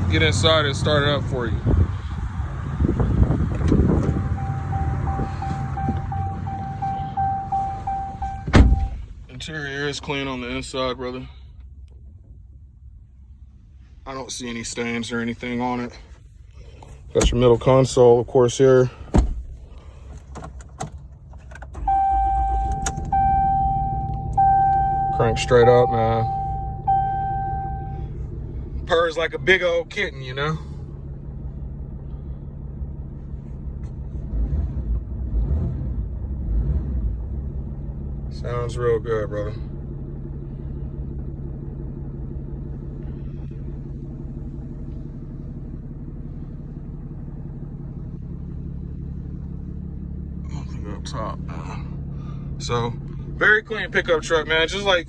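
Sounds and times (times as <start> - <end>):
diesel engine starting and idling: 0.0 - 55.0
dashboard warning chime: 4.0 - 9.0, 21.8 - 28.1.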